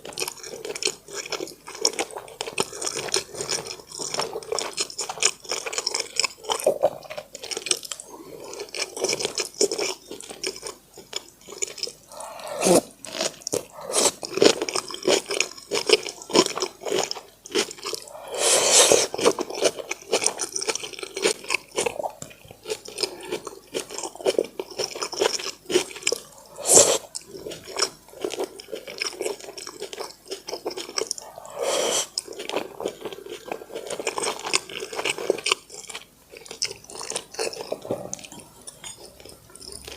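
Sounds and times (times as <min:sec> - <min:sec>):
chewing and mouth smacks: 0:19.0 - 0:39.9.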